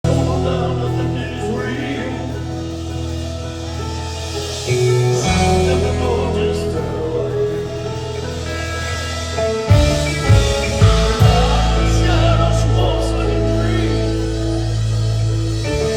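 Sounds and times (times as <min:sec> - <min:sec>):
guitar and keyboard chords: 0:00.0 - 0:15.9
sustained bass note: 0:09.7 - 0:15.9.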